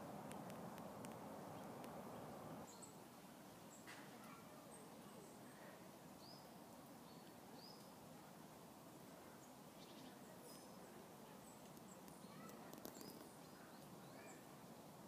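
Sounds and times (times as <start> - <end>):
soft outdoor hiss: 0.0 - 15.0
faint high bird chirps: 9.2 - 14.5.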